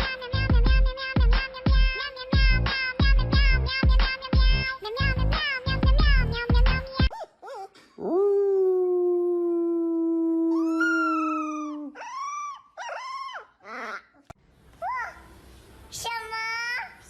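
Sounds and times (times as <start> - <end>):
dog howling: 8.0 - 14.0.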